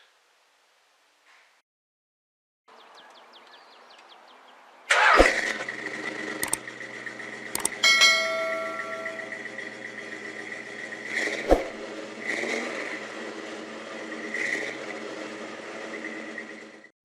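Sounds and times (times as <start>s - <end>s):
car engine cranking and running: 4.9s - 16.9s
sharp clicks: 6.4s - 6.7s, 7.5s - 7.8s.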